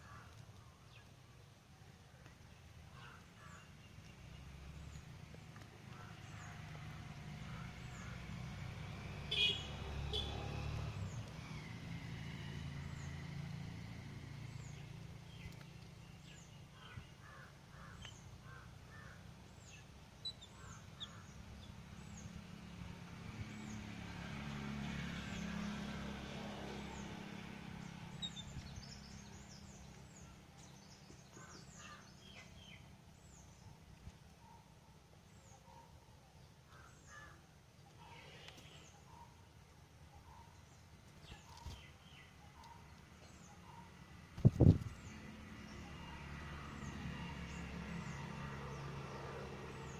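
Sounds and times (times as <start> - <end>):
low traffic rumble: 0.0 - 49.9
vehicle passing: 4.2 - 33.6, 43.1 - 49.9
birds chirping: 9.2 - 49.9.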